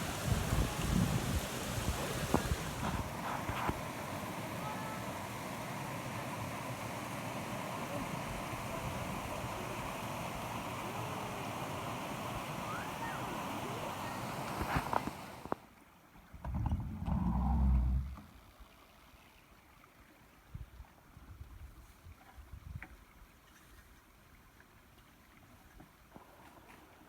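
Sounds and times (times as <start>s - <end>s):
rushing river and waterfall: 0.0s - 15.7s.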